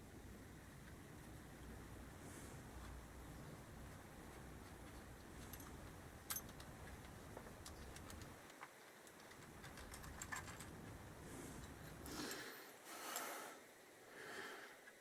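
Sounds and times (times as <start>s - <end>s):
light clicks of screws and tools: 2.5s - 13.3s.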